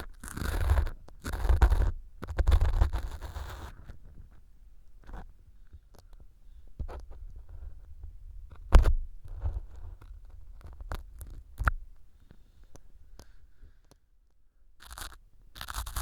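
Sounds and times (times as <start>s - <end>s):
ear pick scraping and tapping: 6.8s - 13.3s
scratchy rustles: 14.8s - 16.0s.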